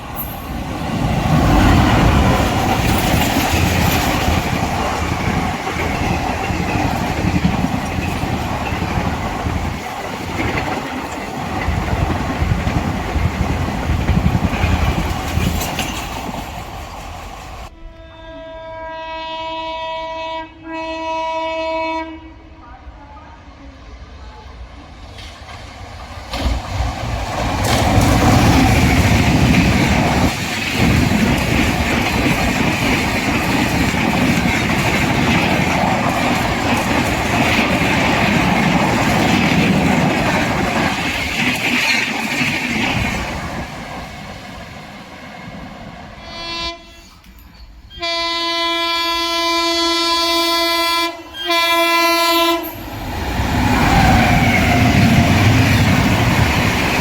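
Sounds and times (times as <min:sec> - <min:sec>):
train wheels rushing on rail: 0:00.0 - 0:17.8, 0:22.8 - 0:57.0
train horn: 0:17.6 - 0:24.5, 0:46.2 - 0:52.9.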